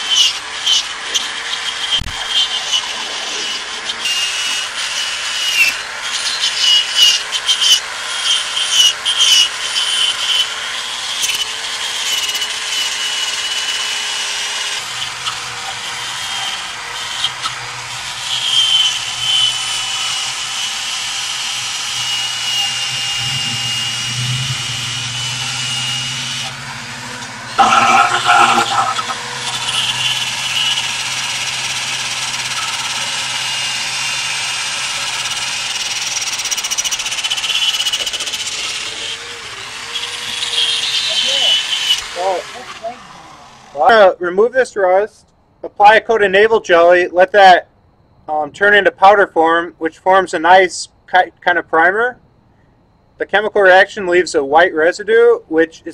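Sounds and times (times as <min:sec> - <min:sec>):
steady low hum: 0:21.7 - 0:35.9
rust scraping off metal: 0:21.8 - 0:39.2.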